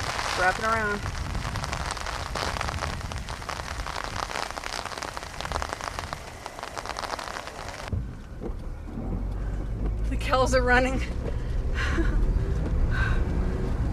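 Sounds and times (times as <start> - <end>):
heavy rain pelting a car: 0.0 - 8.0
low rumble: 0.0 - 13.9.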